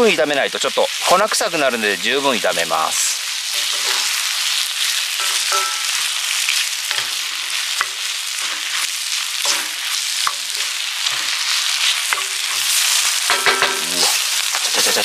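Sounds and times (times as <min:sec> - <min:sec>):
food sizzling in a skillet: 0:00.0 - 0:15.0
spatula stirring and scraping: 0:03.3 - 0:14.8
spatula knocking against pan: 0:05.2 - 0:06.0.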